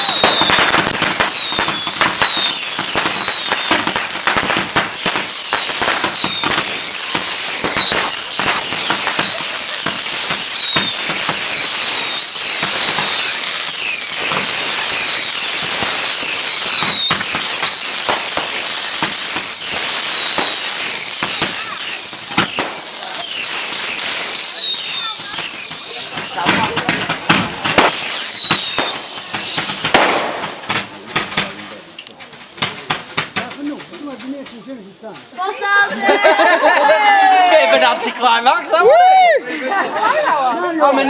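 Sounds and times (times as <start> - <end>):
firework whistles falling in pitch: 0.0 - 30.4
fireworks crackling and popping: 0.0 - 41.0.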